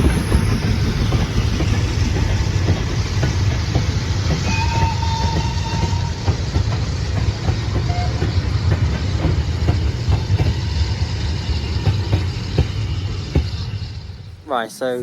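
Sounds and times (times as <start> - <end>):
wheels clicking over rails: 0.0 - 14.3
train rumbling on track: 0.0 - 15.0
thin wheel squeal: 4.4 - 6.5.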